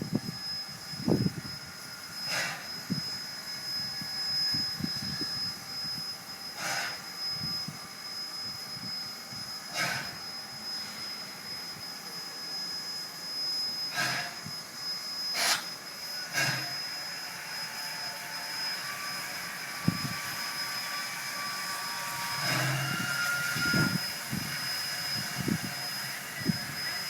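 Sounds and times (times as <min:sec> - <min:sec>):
steam locomotive hissing: 0:00.0 - 0:27.0
steam exhaust chuff: 0:06.6 - 0:07.0, 0:09.7 - 0:10.2, 0:13.9 - 0:14.4, 0:15.3 - 0:16.8, 0:22.0 - 0:24.6.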